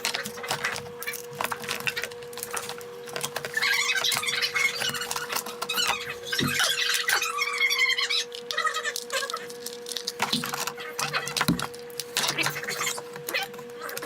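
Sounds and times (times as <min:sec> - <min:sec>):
plastic squeaking: 0:00.0 - 0:14.0
plastic parts clicking and knocking: 0:08.4 - 0:13.0.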